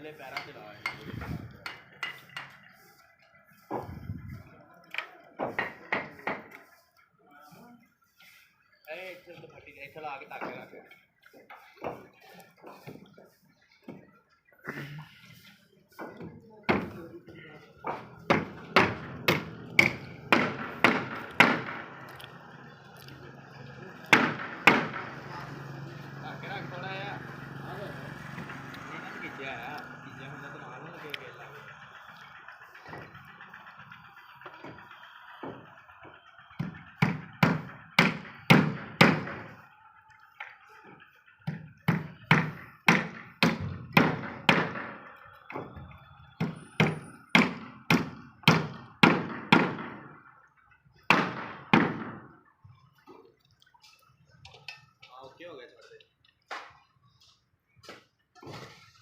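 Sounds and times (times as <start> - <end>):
hammer strikes ringing: 0.2 - 2.6, 17.8 - 22.5, 23.8 - 26.6
sharp knocks: 17.8 - 22.0, 24.1 - 25.2, 36.6 - 39.6, 41.4 - 45.0, 46.4 - 50.2, 51.1 - 52.3.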